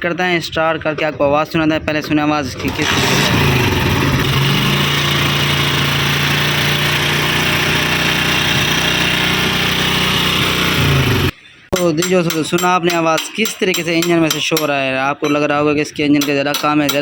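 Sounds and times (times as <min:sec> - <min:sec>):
mechanical rattle in engine: 0:02.6 - 0:11.3
motorcycle engine idling: 0:03.0 - 0:11.3.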